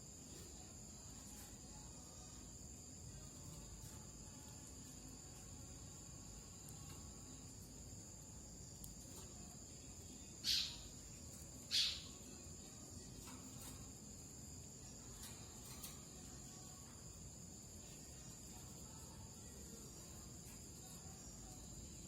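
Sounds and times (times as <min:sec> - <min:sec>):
high insect trill: 0:00.0 - 0:22.0
bird chirps: 0:10.4 - 0:12.4.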